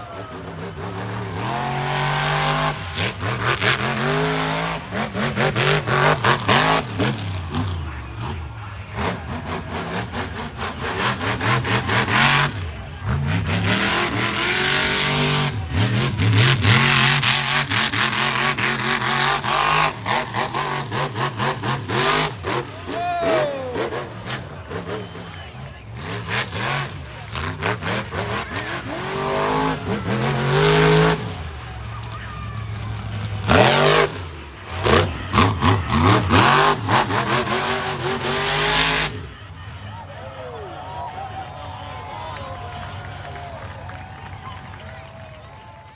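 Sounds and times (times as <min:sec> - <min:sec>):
truck engine revving hard: 0:00.0 - 0:45.9.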